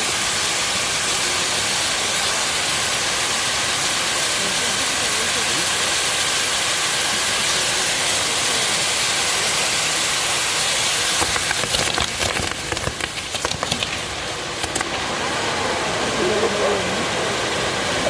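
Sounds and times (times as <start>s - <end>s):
fireworks hissing: 0.0s - 15.6s
fireworks cracking and banging: 10.6s - 15.1s.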